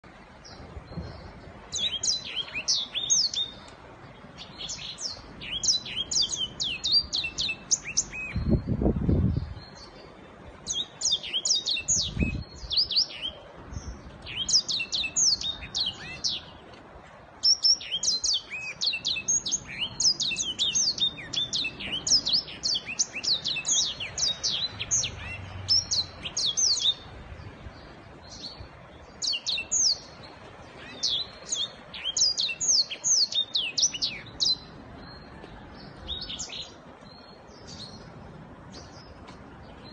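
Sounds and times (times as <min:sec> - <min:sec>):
canary singing: 0:01.2 - 0:03.6, 0:04.4 - 0:08.8, 0:10.7 - 0:16.6, 0:17.4 - 0:27.1, 0:29.2 - 0:38.1.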